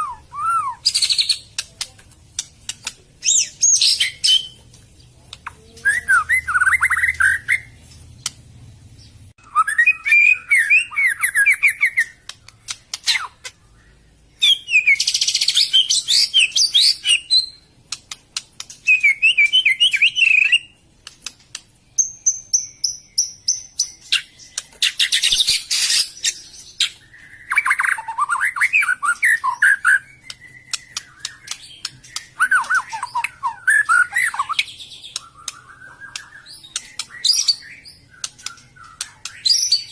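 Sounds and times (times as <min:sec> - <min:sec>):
songbird singing: 0:00.0 - 0:39.9
sharp clicks: 0:00.9 - 0:03.4, 0:07.9 - 0:08.4, 0:12.0 - 0:13.6, 0:17.9 - 0:19.0, 0:21.0 - 0:21.8, 0:30.2 - 0:33.3, 0:34.4 - 0:37.4, 0:38.1 - 0:39.6.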